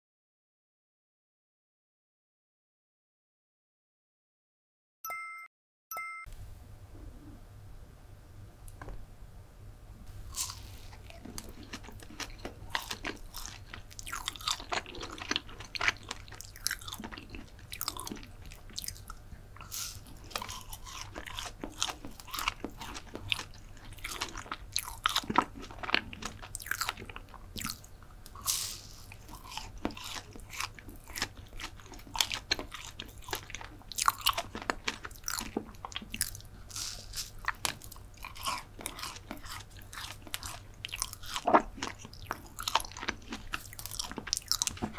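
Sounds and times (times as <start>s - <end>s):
mouth chewing clicks and smacks: 10.4s - 44.9s.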